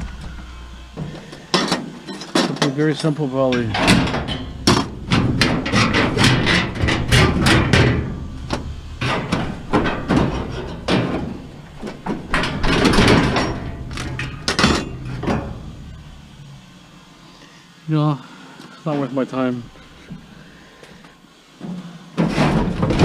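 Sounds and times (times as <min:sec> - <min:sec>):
tool banging on metal: 0:03.4 - 0:16.2.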